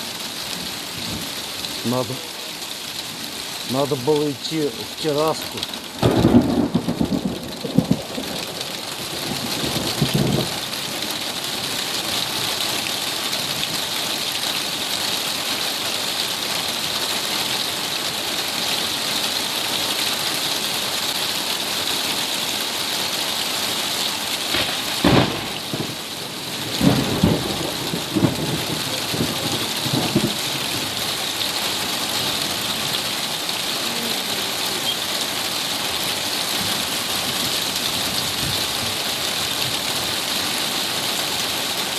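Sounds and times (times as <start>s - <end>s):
heavy rain falling: 0.0s - 41.9s
loud thunderclap: 6.0s - 10.6s, 24.5s - 31.0s
low thunder rumbles: 6.0s - 10.9s, 24.5s - 31.3s.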